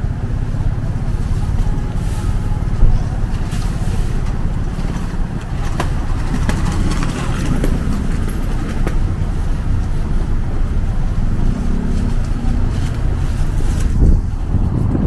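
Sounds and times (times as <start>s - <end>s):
passing traffic: 0.0s - 15.0s
wind on microphone: 0.0s - 15.0s.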